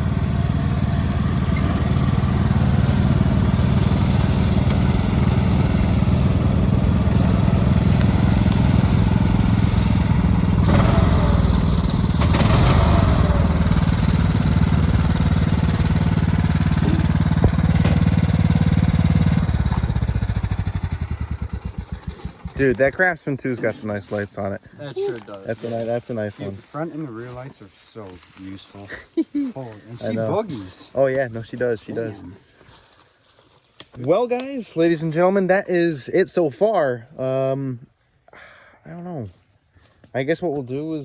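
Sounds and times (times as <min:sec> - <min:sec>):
lawn mower engine running: 0:00.0 - 0:23.3.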